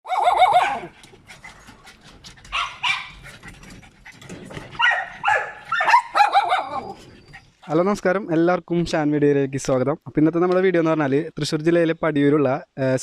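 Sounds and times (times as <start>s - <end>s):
dogs barking high-pitched: 0.1s - 1.0s, 2.5s - 3.3s, 4.8s - 7.2s.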